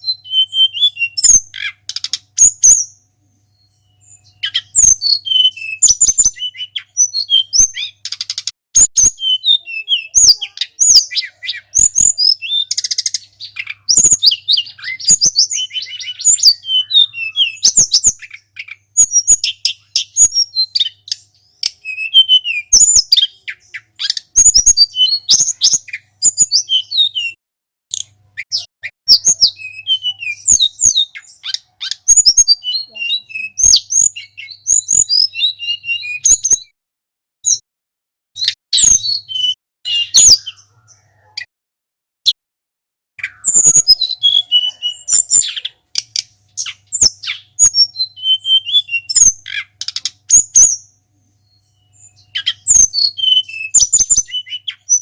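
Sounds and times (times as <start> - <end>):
songbird singing chirps and whistles: 0.0 - 36.8, 38.4 - 41.5, 43.2 - 55.0
sharp clicks: 8.0 - 8.5, 49.8 - 50.2.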